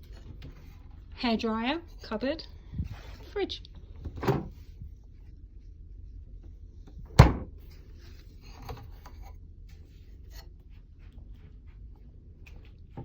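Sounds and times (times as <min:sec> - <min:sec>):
cabinet door shutting: 0:04.1 - 0:04.5, 0:07.1 - 0:07.5.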